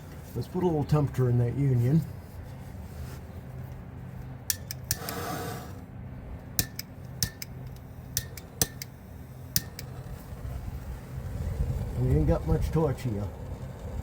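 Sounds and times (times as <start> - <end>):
steady low hum: 0.0 - 14.0
torch igniter clicks: 4.5 - 5.8, 6.5 - 10.1
gas hiss: 4.9 - 5.8.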